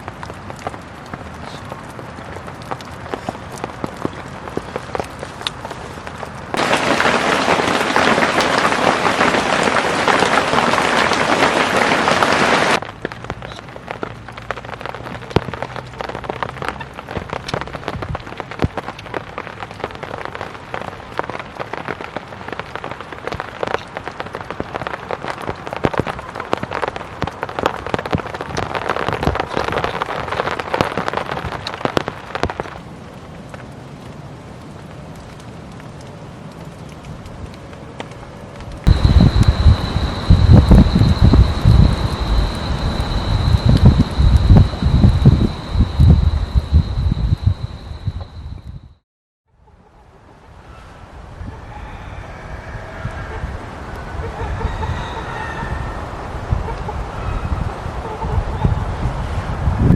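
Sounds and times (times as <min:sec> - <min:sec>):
raindrops striking fabric: 0:00.0 - 0:47.6
rain on a tent: 0:00.0 - 0:48.5, 0:53.0 - 0:54.4.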